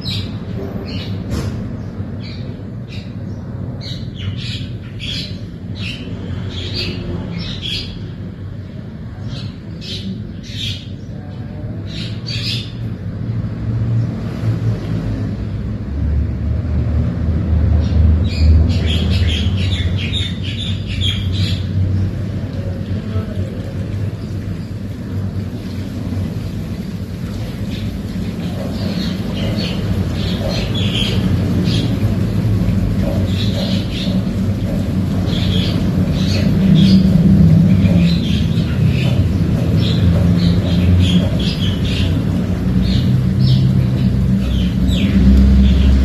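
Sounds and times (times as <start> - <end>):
small birds chirping: 17.8 - 25.3, 27.2 - 46.0.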